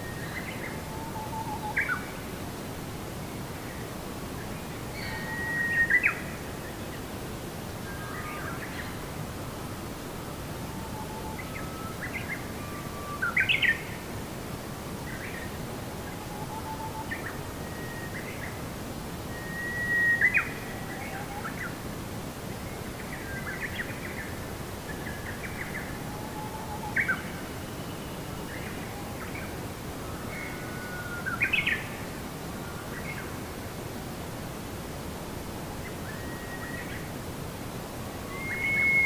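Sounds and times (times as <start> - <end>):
steady background hiss: 0.0 - 39.0
songbirds singing: 22.7 - 33.4, 38.0 - 39.0.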